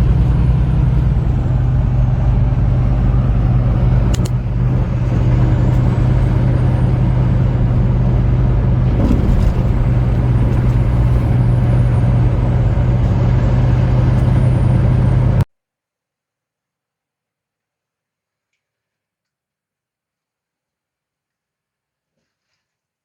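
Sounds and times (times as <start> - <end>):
road noise: 0.0 - 15.5
truck engine droning: 0.0 - 15.5.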